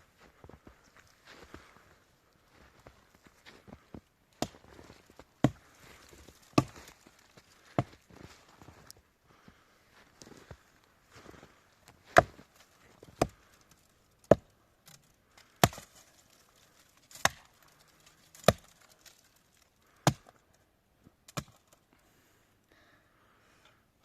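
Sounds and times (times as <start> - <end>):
axe chopping firewood: 4.4 - 7.0, 7.6 - 8.0, 12.0 - 13.6, 14.2 - 19.2, 19.9 - 20.4, 21.3 - 21.7.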